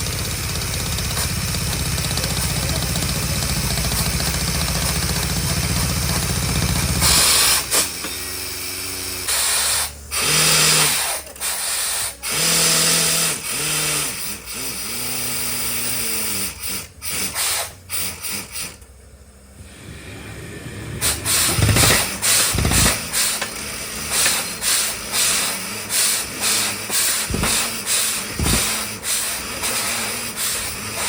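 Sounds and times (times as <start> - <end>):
drilling rig machinery humming: 0.0 - 31.0
bursts of hiss: 0.2 - 31.0.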